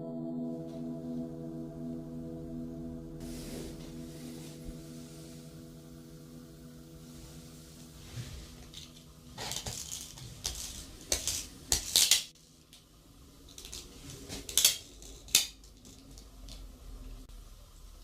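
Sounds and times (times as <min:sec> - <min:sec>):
small hard objects clinking: 0:08.6 - 0:12.3, 0:13.5 - 0:16.6.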